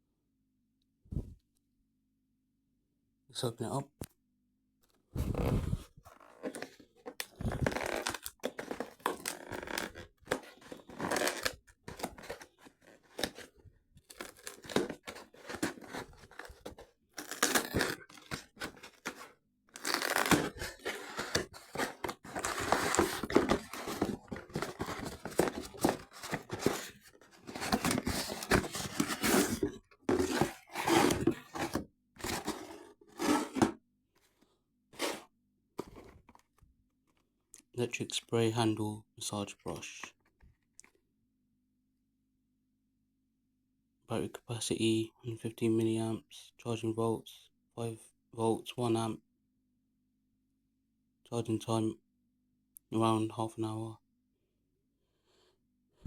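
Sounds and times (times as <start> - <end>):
packaging tearing and crinkling: 7.2 - 13.5, 14.1 - 33.6.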